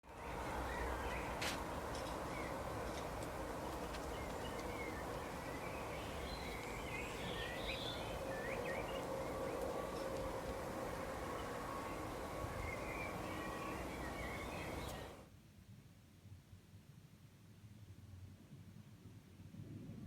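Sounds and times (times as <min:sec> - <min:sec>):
birds chirping: 0:00.0 - 0:15.3.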